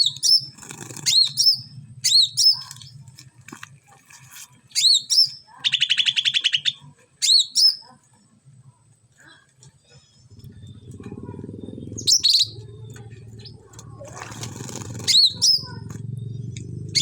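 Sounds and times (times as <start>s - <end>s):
fast bird trill: 0.0s - 3.0s, 10.3s - 13.7s, 14.4s - 17.0s
faint low hum: 6.6s - 17.0s
songbird chirping: 9.6s - 17.0s.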